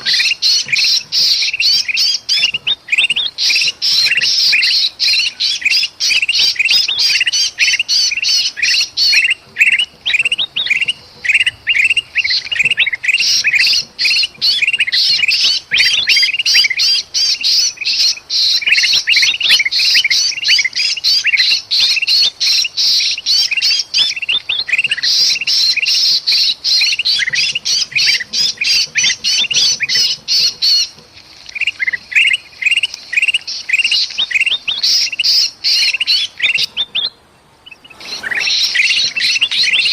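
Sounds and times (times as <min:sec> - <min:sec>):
bird distress calls: 0:00.0 - 0:39.9
birds alarm calls: 0:00.0 - 0:39.9.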